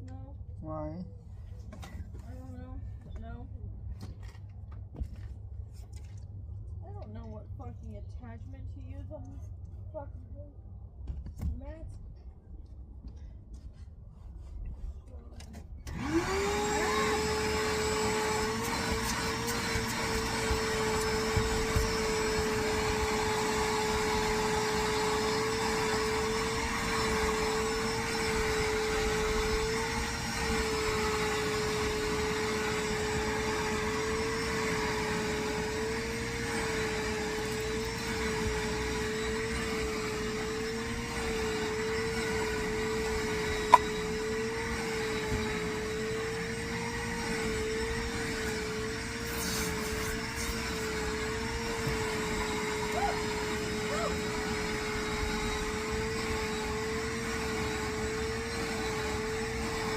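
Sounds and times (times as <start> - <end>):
vacuum cleaner running: 15.5 - 59.9.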